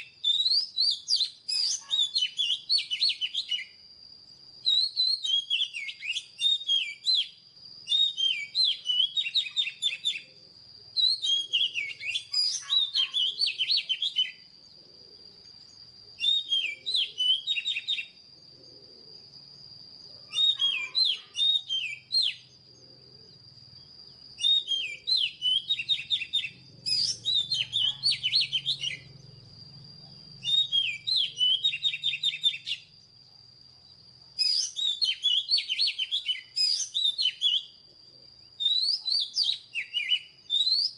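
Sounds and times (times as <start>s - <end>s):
bird singing whistled notes: 0.0s - 40.9s.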